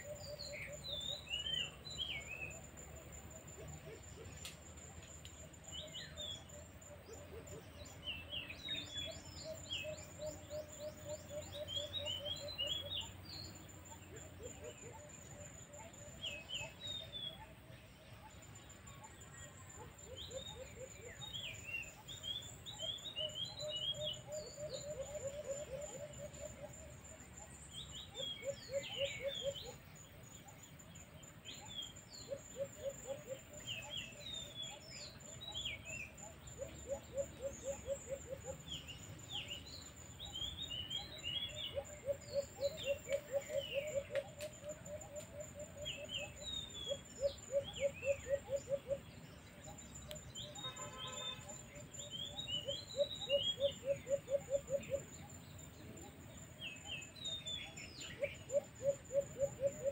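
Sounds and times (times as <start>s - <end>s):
birds chirping: 18.3s - 59.9s.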